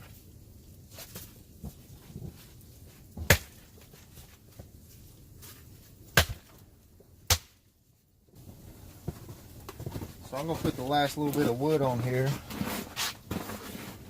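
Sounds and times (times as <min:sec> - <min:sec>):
firewood sticks snapping: 0:03.3 - 0:03.7, 0:06.1 - 0:06.6, 0:07.3 - 0:07.6.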